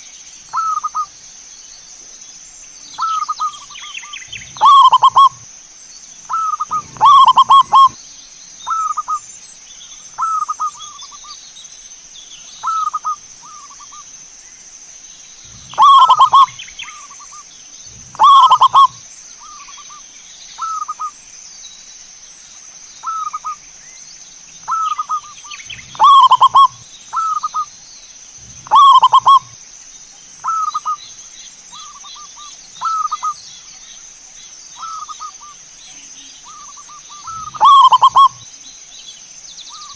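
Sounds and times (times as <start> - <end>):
doves cooing: 3.0 - 5.4, 6.3 - 8.0, 15.4 - 19.8, 24.6 - 27.7, 28.4 - 29.6, 36.5 - 38.4.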